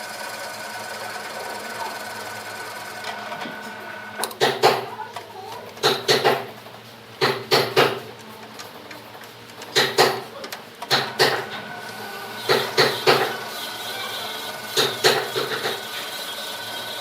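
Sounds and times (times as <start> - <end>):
machine hum: 0.0 - 17.0
sharp knocks on wood: 5.8 - 6.5, 7.2 - 8.0, 9.8 - 10.2.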